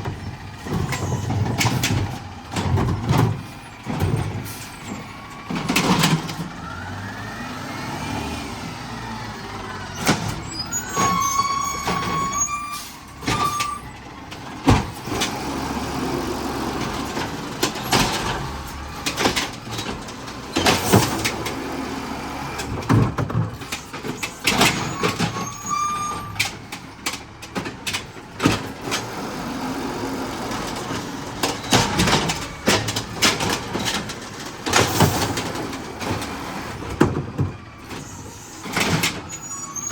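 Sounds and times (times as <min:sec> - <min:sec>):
garbage truck engine running: 0:00.0 - 0:39.9
short high squeal: 0:10.4 - 0:14.0, 0:24.8 - 0:26.4, 0:39.3 - 0:39.9.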